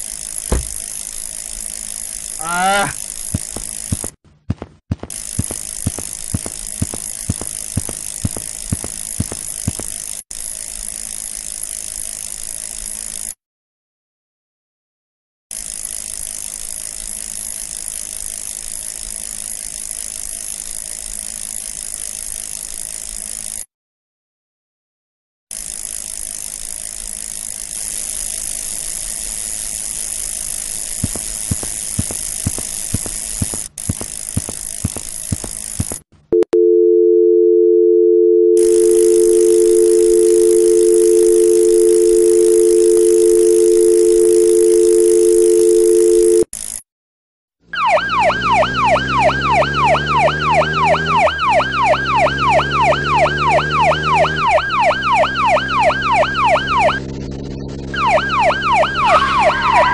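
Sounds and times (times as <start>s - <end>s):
sharp clicks: 5.0s - 10.0s, 31.0s - 36.0s
low stepped tune: 31.0s - 35.9s, 47.8s - 59.9s
dial tone: 36.4s - 46.5s, 47.8s - 57.0s, 57.9s - 59.9s
yelping siren: 47.7s - 59.9s.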